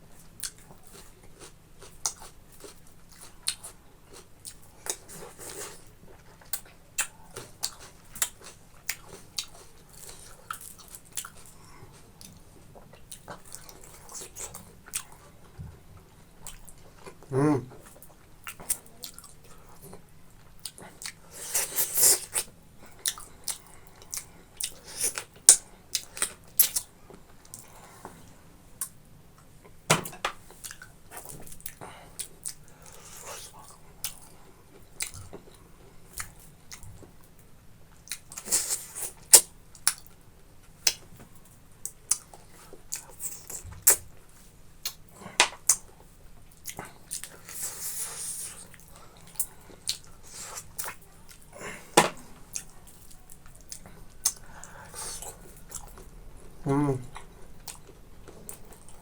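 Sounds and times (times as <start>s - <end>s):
wet chewing and mouth smacks: 41.8s - 44.1s, 44.8s - 51.5s.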